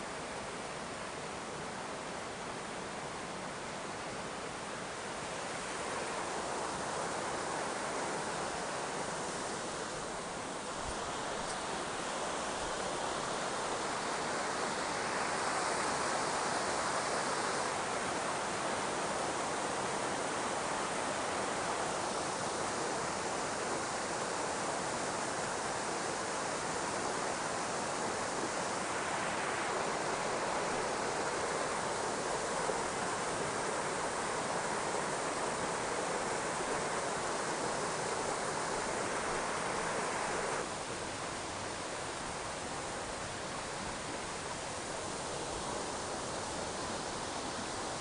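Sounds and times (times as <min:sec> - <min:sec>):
stream rushing over rocks: 0:00.0 - 0:48.0.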